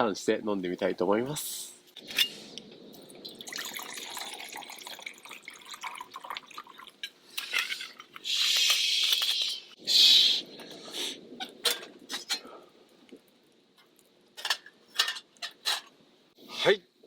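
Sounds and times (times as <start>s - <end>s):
liquid pouring into a vessel: 3.2s - 7.0s.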